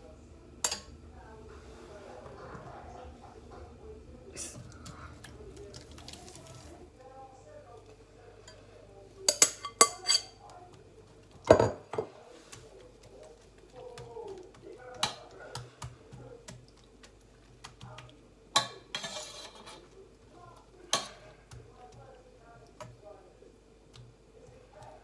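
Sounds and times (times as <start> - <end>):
faint steady hum: 0.0 - 25.0
metal utensils clinking on pan: 0.6 - 0.9, 9.3 - 10.4, 18.6 - 19.9.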